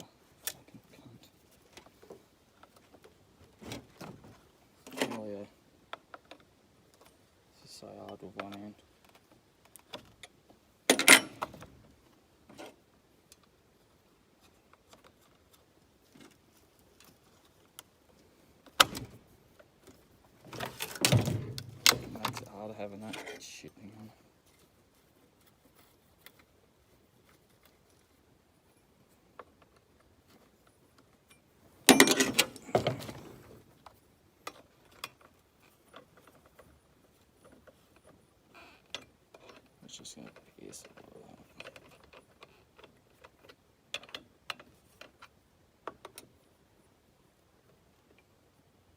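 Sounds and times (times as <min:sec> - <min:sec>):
chainsaw chain clattering: 0:31.8 - 0:33.6.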